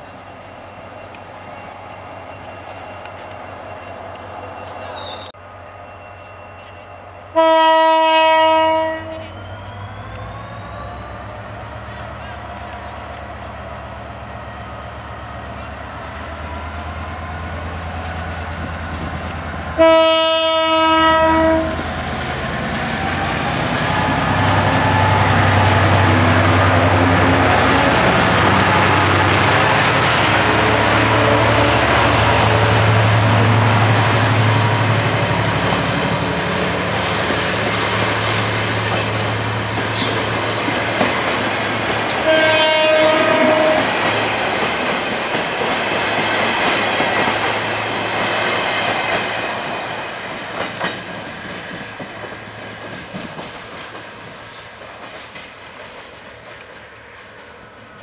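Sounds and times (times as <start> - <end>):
train horn blast: 7.3 - 9.3, 19.7 - 21.9, 42.2 - 44.0
locomotive engine rumbling: 8.4 - 58.0
train wheels clattering: 23.0 - 58.0.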